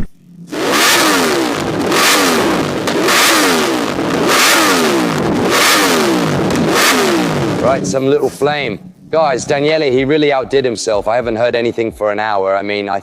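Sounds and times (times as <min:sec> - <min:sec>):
motorcycle engine revving: 0:00.0 - 0:10.3.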